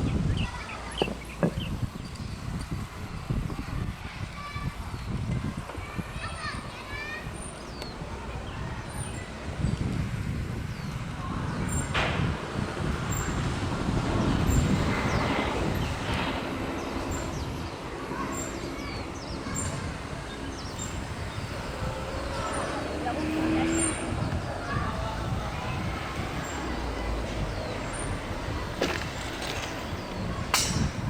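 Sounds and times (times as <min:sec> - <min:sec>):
train rumbling on rails: 0:00.0 - 0:31.0
sharp rail clack: 0:28.8 - 0:31.0.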